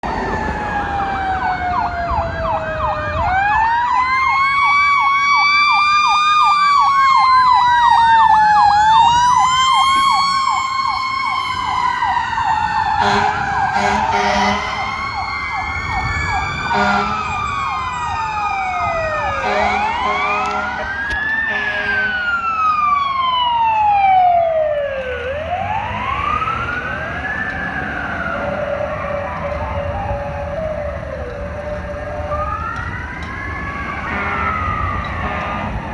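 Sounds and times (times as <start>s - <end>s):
wailing siren: 0.0s - 35.9s
warbling siren: 0.0s - 35.9s
air horn blasts: 13.0s - 14.9s, 16.7s - 17.4s, 19.4s - 22.3s, 34.1s - 35.9s.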